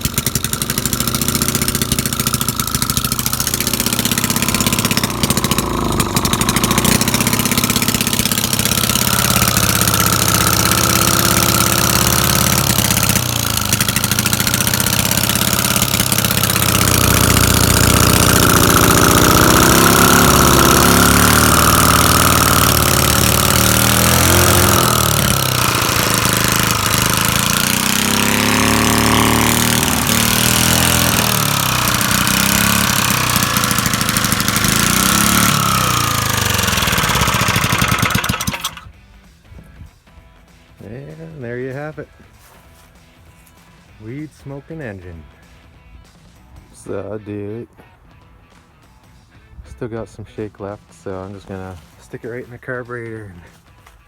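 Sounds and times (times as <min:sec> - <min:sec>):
small gas engine revving: 0:00.0 - 0:39.0.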